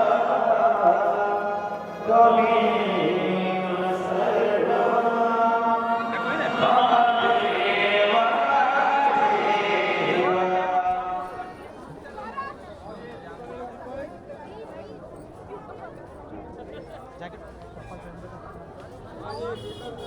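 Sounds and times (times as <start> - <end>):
chant-like singing: 0.0 - 11.5.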